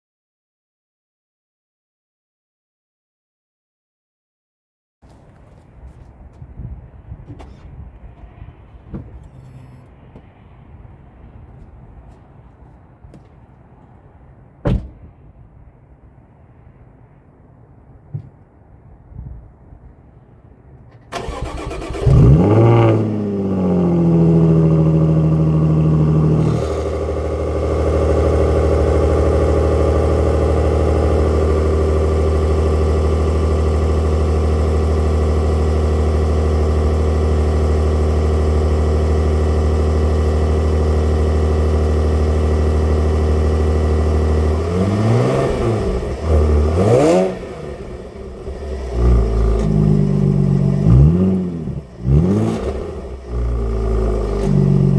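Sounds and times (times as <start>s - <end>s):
car engine starting and idling: 5.0s - 54.9s
engine revving: 21.1s - 54.9s.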